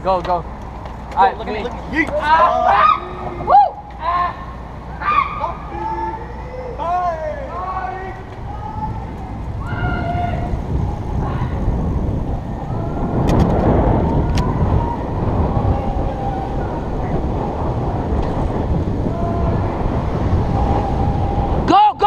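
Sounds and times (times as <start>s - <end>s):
wind buffeting microphone: 0.0s - 22.0s
faint distant shouts: 1.9s - 13.2s, 18.9s - 22.0s.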